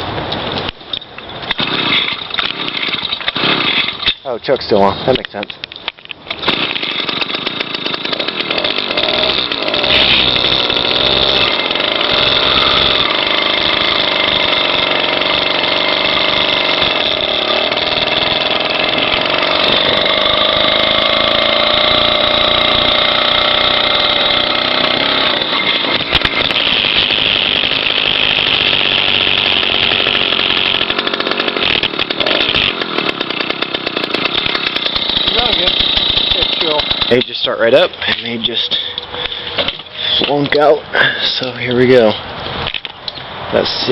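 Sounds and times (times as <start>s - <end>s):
buzzy two-stroke engine running: 6.4s - 37.5s.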